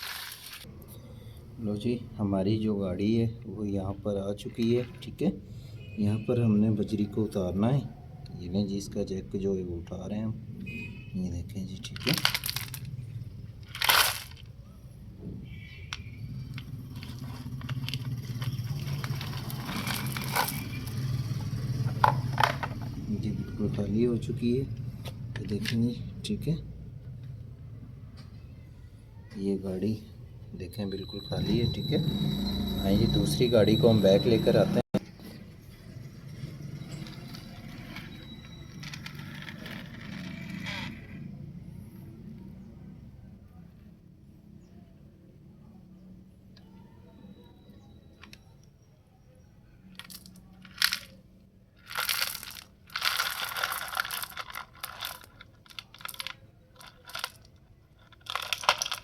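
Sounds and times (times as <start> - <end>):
pebbles trickling and clicking: 0.0 - 0.7, 11.8 - 13.0, 13.6 - 14.5, 15.9 - 23.2, 49.9 - 51.2, 51.8 - 59.0
toy wheels rolling and scraping: 0.0 - 0.7, 11.8 - 14.6, 15.6 - 26.0, 30.9 - 41.6, 49.9 - 51.2, 51.8 - 59.0
gravel sliding out: 16.5 - 21.4.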